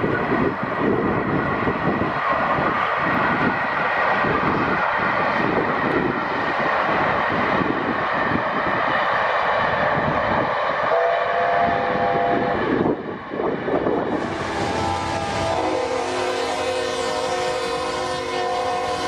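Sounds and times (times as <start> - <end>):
train running on track: 0.0 - 19.0
train horn chord: 10.9 - 12.6, 14.2 - 19.0.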